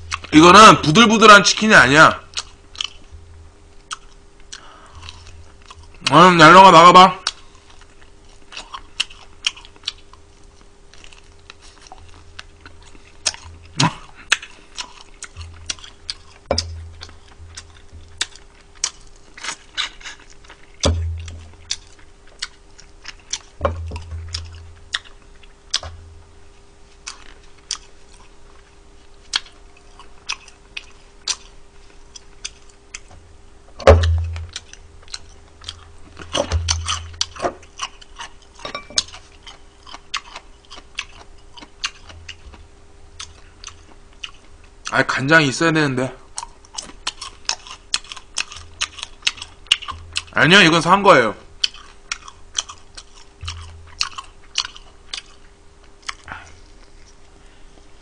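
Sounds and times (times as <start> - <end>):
chewing and crunching fried chicken: 0.0 - 33.4, 34.0 - 58.0
faint steady hum: 0.0 - 58.0
low thumps: 3.1 - 3.7, 16.5 - 18.2, 20.8 - 21.8, 23.6 - 24.9, 33.8 - 34.7, 36.3 - 37.2.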